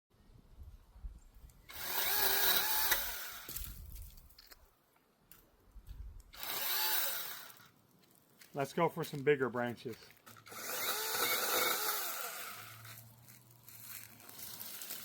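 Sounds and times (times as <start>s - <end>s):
mini chainsaw cutting branches: 1.7s - 4.0s, 6.3s - 7.7s, 10.3s - 13.1s, 14.0s - 15.0s.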